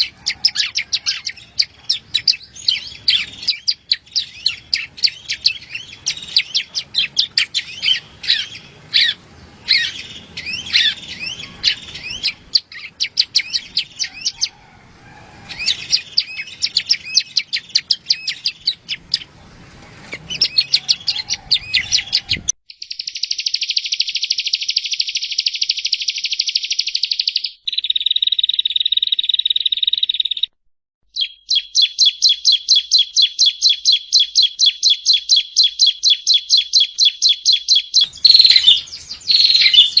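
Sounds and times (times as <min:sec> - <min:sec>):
bird chirping: 0:00.0 - 0:14.7, 0:15.5 - 0:40.0
background noise: 0:00.0 - 0:40.0
bird buzzing trills: 0:38.0 - 0:40.0.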